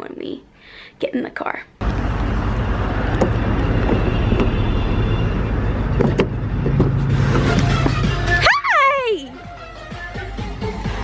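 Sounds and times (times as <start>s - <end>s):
car engine idling: 1.8s - 8.4s.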